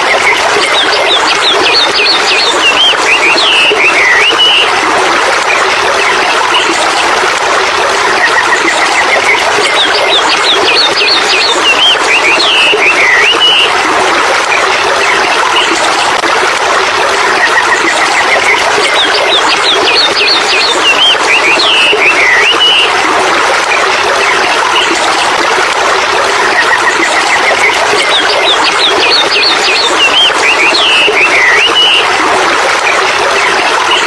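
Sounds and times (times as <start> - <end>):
birds singing: 0.1 - 4.7, 8.6 - 13.7, 18.1 - 22.9, 26.8 - 32.1.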